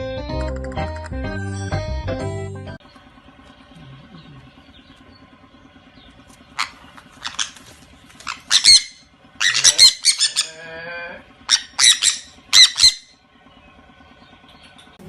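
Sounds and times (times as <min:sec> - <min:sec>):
music: 0:00.0 - 0:02.8
animal squawking calls: 0:06.4 - 0:13.2.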